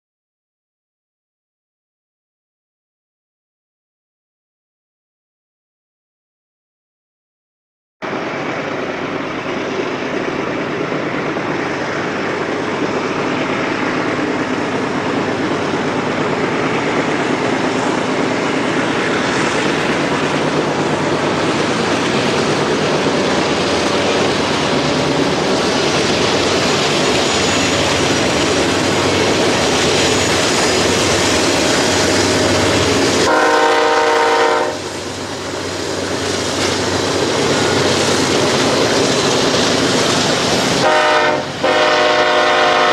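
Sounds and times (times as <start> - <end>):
freight train passing: 8.0 - 42.9
train horn blast: 33.2 - 34.9, 40.8 - 42.9.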